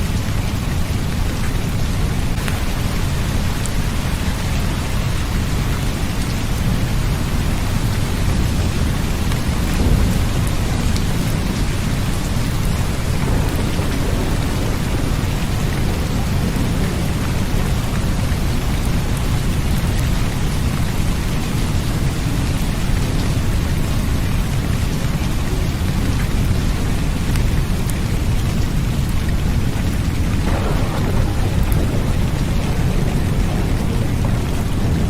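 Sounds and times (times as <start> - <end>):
steady rain: 0.0 - 35.0
low rumble: 30.3 - 35.0.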